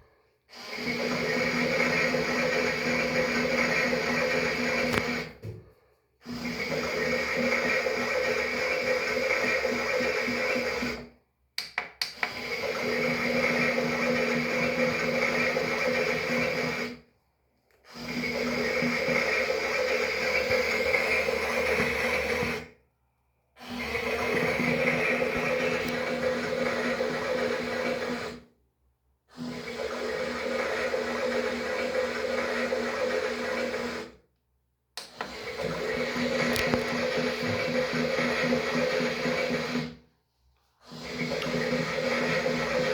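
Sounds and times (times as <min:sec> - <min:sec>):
toy washing machine motor whirring: 0:00.5 - 0:05.4, 0:06.2 - 0:11.1, 0:12.2 - 0:17.0, 0:17.8 - 0:22.7, 0:23.6 - 0:28.5, 0:29.4 - 0:34.2, 0:35.2 - 0:40.0, 0:40.8 - 0:42.9.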